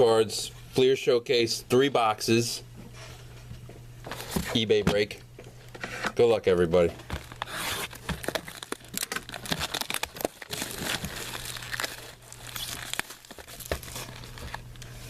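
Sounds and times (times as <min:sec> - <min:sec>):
plastic shrink wrap crinkling: 0:07.0 - 0:15.0.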